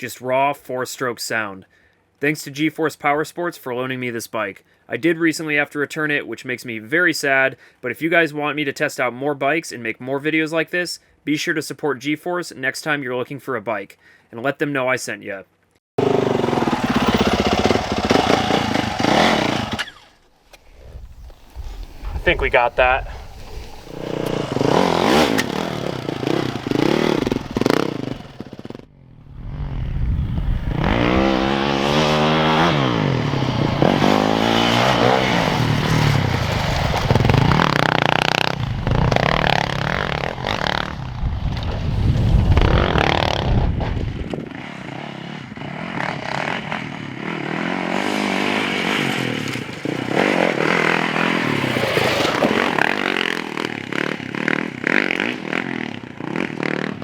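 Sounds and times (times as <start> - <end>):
dirt bike engine revving: 16.0 - 41.4, 42.5 - 57.0.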